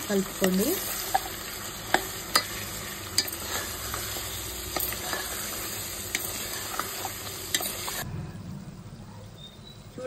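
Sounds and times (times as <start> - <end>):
meat sizzling in oil: 0.0 - 8.0.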